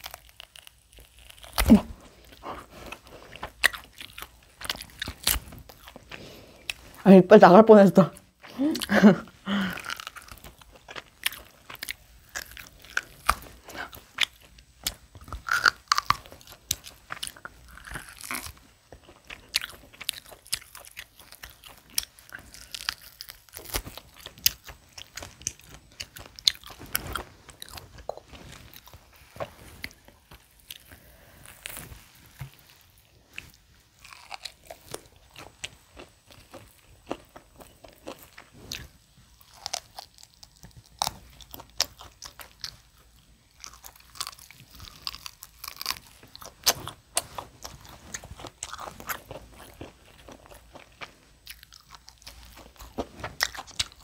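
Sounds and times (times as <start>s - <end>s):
person biting and chewing food: 0.0s - 7.0s, 8.4s - 54.0s.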